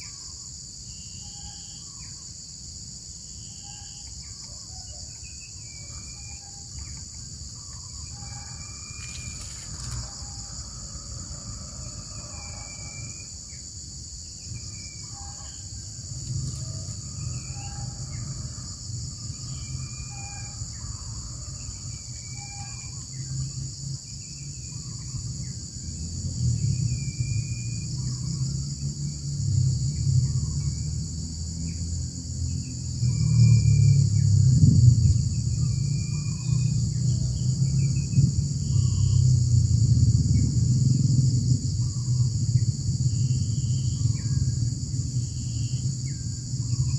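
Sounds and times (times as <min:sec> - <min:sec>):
high insect chorus: 0:00.0 - 0:46.9
low rumble: 0:07.8 - 0:13.4, 0:14.1 - 0:31.0.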